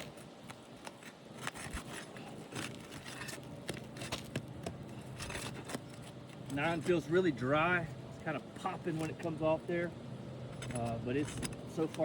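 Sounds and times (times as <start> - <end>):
shingle scraping: 0.0 - 7.1
shingle sealant popping and crackling: 0.0 - 7.1.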